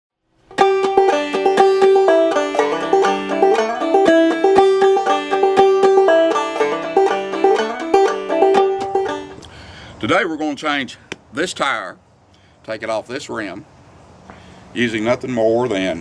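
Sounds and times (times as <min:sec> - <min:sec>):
bluegrass banjo tune: 0:00.5 - 0:09.4.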